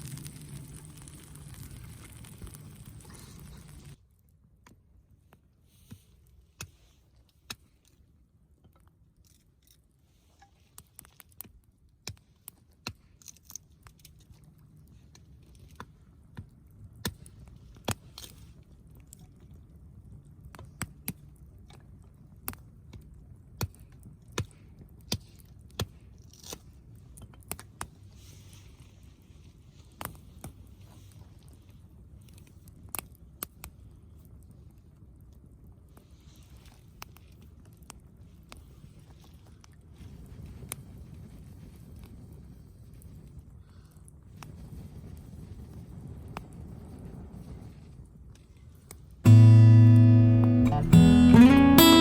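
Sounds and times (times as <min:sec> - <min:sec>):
campfire crackling: 0:00.0 - 0:04.0, 0:49.3 - 0:52.0
low rumble: 0:00.0 - 0:04.0.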